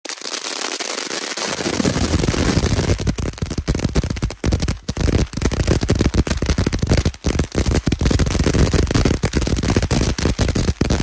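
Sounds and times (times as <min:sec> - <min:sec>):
firework crackling pops: 0:00.0 - 0:11.0.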